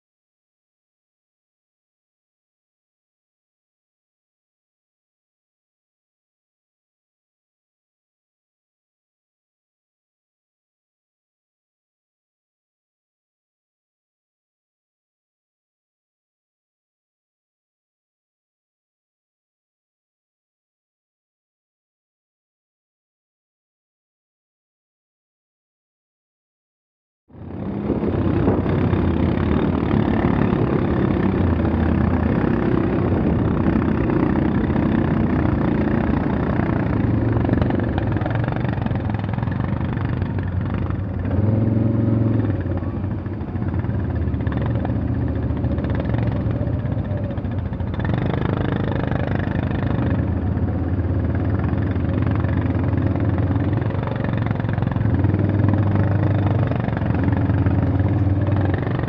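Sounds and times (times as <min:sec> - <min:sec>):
vehicle engine running: 0:27.3 - 0:59.0.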